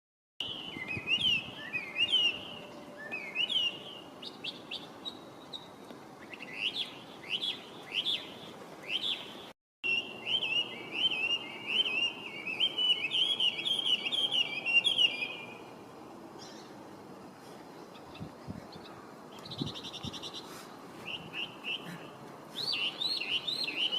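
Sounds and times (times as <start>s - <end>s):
bird singing whistled phrases: 0.4s - 5.2s, 6.2s - 8.3s, 8.9s - 15.6s, 19.4s - 21.9s, 22.6s - 23.9s.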